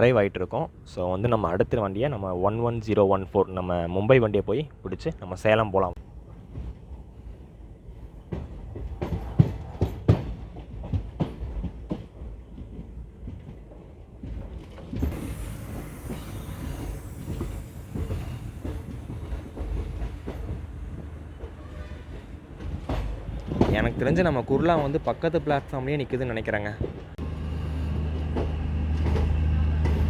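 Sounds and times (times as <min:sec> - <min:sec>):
train rumble: 0:05.9 - 0:30.0
train wheels knocking over rail joints: 0:08.3 - 0:25.3
steady hiss: 0:15.1 - 0:19.6.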